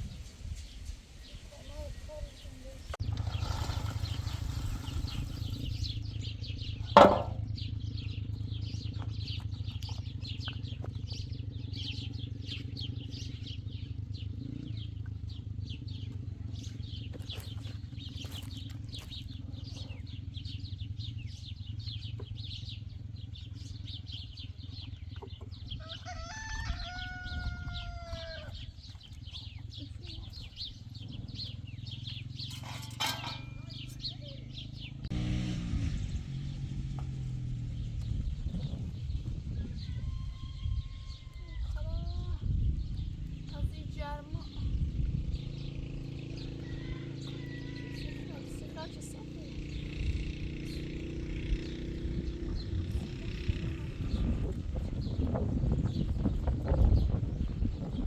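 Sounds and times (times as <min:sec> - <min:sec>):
small birds chirping: 0:00.0 - 0:58.0
loud sharp knock: 0:07.0 - 0:07.4
rooster crowing: 0:25.8 - 0:28.6, 0:39.6 - 0:41.8, 0:46.4 - 0:48.6.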